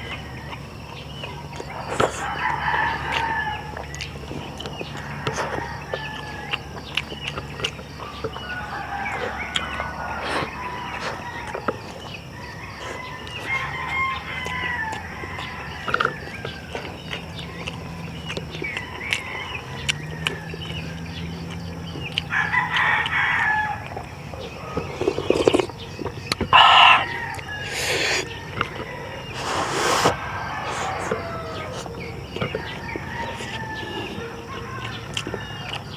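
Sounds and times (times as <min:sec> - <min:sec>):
rooster crowing: 0:00.0 - 0:07.2, 0:07.8 - 0:35.9
soft eating clicks: 0:00.1 - 0:35.9.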